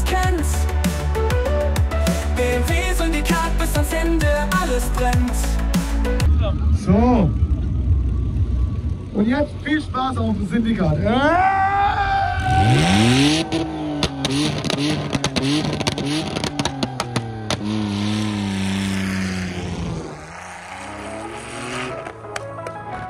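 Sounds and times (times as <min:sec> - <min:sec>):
car engine revving hard: 0:12.4 - 0:22.2.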